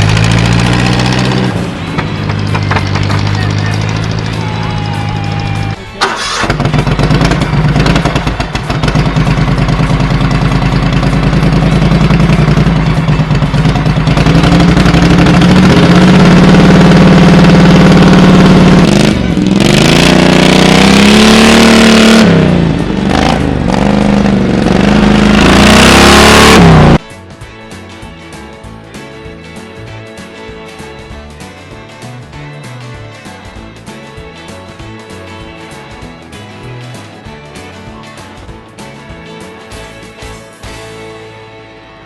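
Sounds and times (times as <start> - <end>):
engine revving: 0.0 - 27.1.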